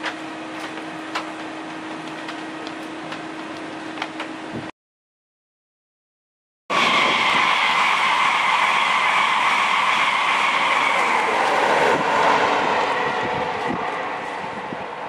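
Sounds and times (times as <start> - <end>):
train passing at speed: 6.8 - 15.0.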